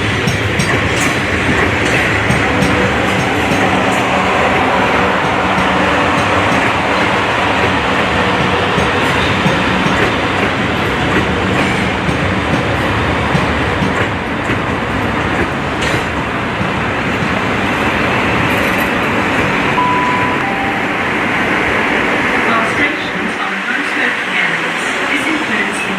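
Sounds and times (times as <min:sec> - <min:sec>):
train wheels rumbling: 0:00.0 - 0:25.9
brief higher tone: 0:19.8 - 0:21.6.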